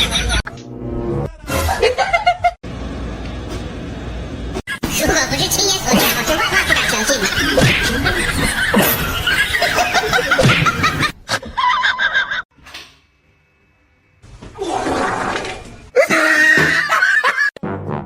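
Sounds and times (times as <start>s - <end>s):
people laughing: 0.0s - 0.5s, 1.3s - 2.6s, 5.9s - 12.4s, 16.0s - 17.5s.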